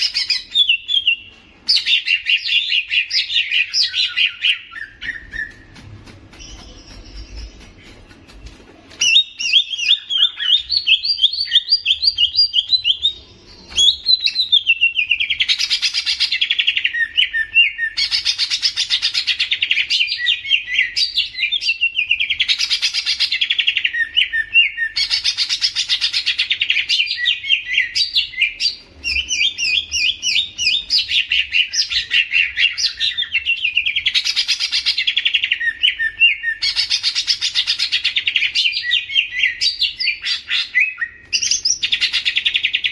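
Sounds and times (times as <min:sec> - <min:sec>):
songbird chattering song: 0:00.0 - 0:42.9.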